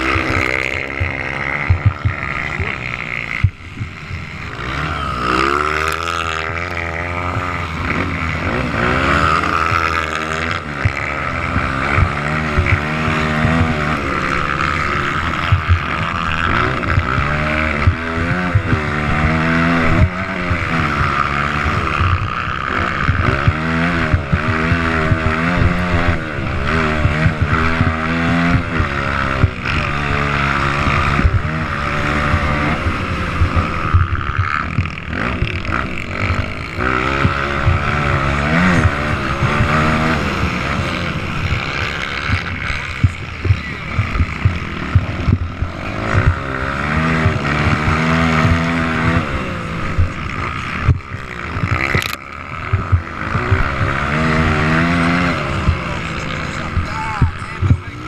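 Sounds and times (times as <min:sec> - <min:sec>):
motocross bike engines revving: 0:00.0 - 0:58.0.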